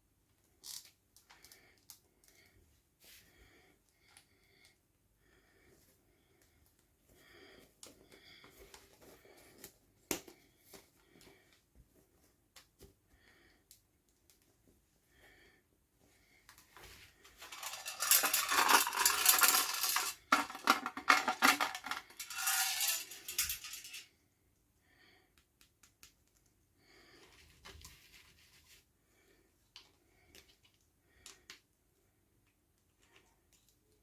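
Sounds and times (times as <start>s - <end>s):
small plastic pieces clicking: 17.5s - 24.0s.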